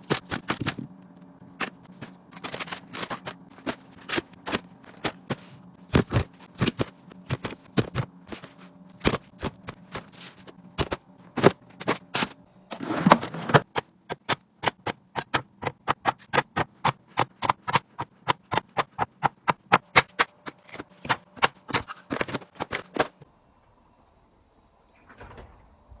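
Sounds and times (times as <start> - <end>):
plastic containers clicking and tapping: 13.6 - 23.2.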